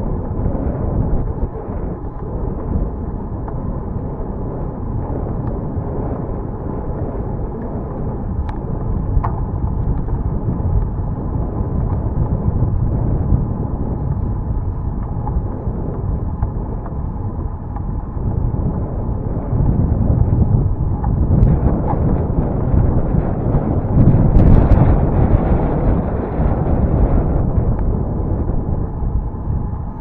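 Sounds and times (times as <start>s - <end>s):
wind rushing over microphone: 0.0s - 30.0s
faint clicks: 8.4s - 11.0s.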